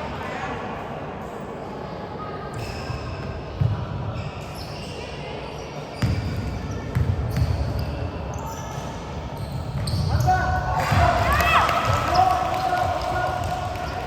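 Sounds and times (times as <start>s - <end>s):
basketball bouncing on gym floor: 6.0s - 7.9s
echoing hall noise: 8.4s - 14.0s.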